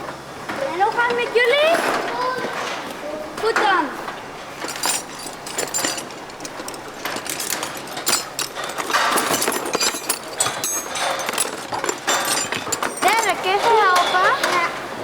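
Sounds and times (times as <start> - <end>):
hand tools clanking on metal: 4.4 - 14.9.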